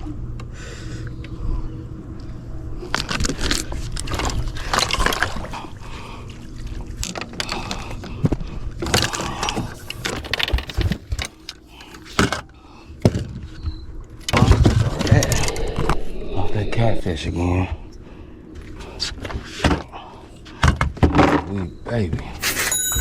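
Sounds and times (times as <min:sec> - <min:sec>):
steady low hum: 0:00.0 - 0:22.4
gear rattling and knocking: 0:07.0 - 0:12.4.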